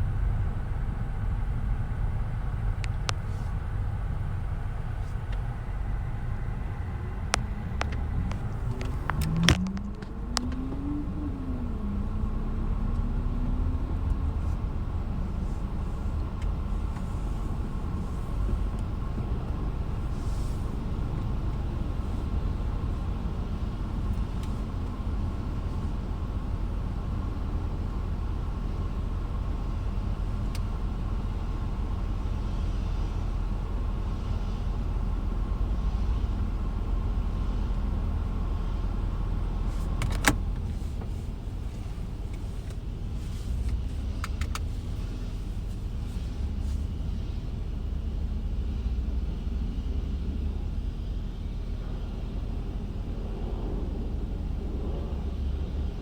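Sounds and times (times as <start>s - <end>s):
car engine rumbling: 0.0s - 56.0s.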